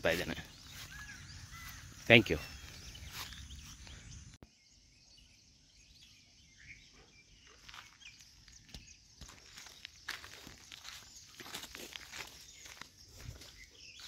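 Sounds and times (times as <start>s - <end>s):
faint bird chirps: 0.0s - 14.0s
outdoor background: 0.0s - 14.0s.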